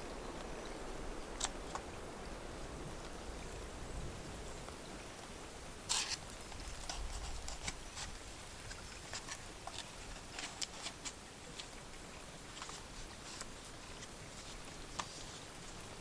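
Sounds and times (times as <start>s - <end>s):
light clicks of small items: 1.3s - 2.0s, 5.9s - 15.9s.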